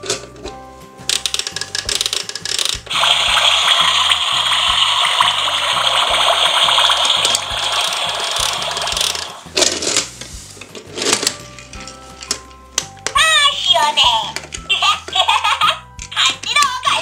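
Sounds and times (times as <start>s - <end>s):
plastic clicking and ratcheting: 0.0s - 3.1s, 6.7s - 10.1s, 14.3s - 15.2s
toy car wash hissing: 1.1s - 11.6s.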